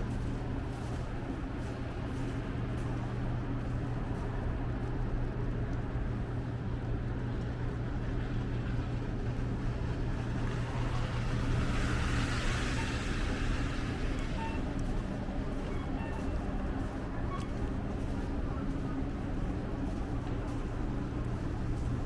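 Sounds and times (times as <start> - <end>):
street traffic: 0.0 - 22.0
vehicle engine humming: 9.4 - 22.0.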